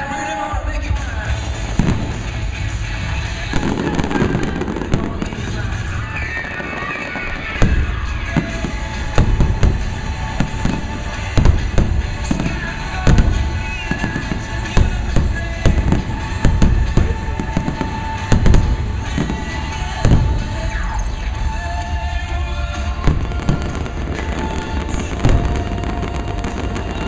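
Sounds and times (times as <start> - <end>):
fireworks bangs: 0.0 - 27.0
music playing: 0.0 - 27.0.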